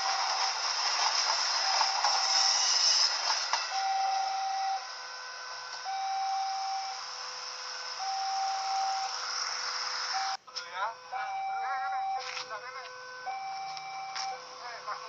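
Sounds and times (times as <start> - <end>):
level crossing warning beeps: 1.6 - 2.9, 3.7 - 5.1, 5.8 - 7.2, 7.9 - 9.3, 10.1 - 15.0.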